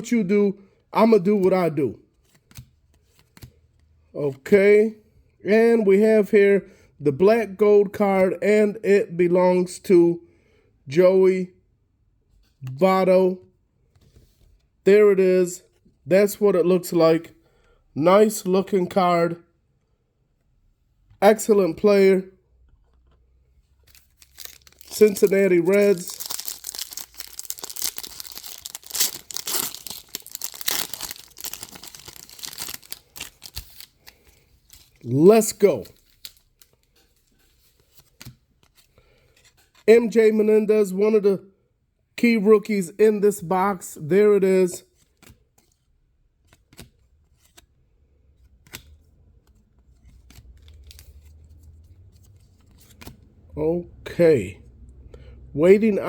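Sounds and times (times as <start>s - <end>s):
trading cards clicking and rustling: 23.8s - 39.9s, 48.3s - 53.3s
foil wrapper crinkling and tearing: 23.9s - 35.1s.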